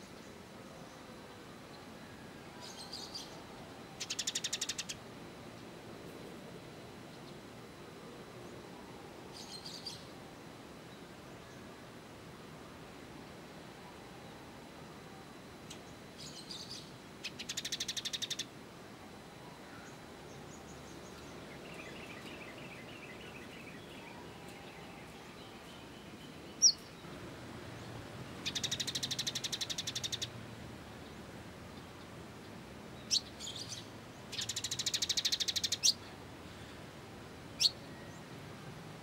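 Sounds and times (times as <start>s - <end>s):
songbird trills: 2.0s - 5.7s, 15.7s - 18.5s, 19.6s - 27.2s, 27.8s - 30.4s, 31.0s - 36.8s, 37.6s - 38.3s
soft bird twittering: 15.7s - 18.5s, 19.7s - 27.1s, 28.4s - 30.3s, 33.0s - 36.1s, 37.6s - 38.2s.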